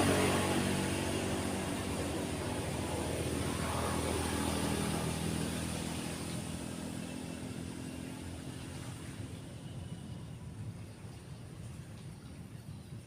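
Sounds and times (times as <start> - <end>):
passing vehicle engine: 0.0 - 9.4.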